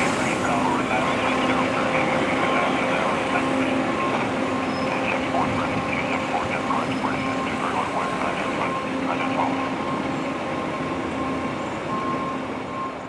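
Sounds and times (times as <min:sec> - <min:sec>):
diesel engine drone: 0:00.0 - 0:13.0
steady engine whine: 0:00.0 - 0:13.0.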